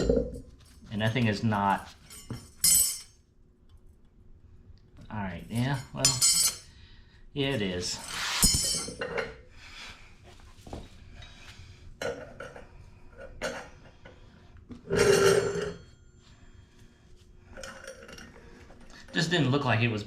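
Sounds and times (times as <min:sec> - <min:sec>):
metal bike parts clinking: 0:00.0 - 0:03.2, 0:05.5 - 0:06.7, 0:08.4 - 0:09.3.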